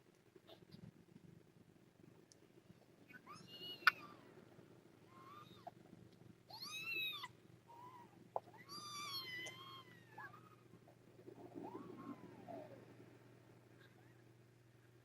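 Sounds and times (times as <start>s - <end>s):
kittens mewing: 3.1s - 4.3s, 6.5s - 10.8s.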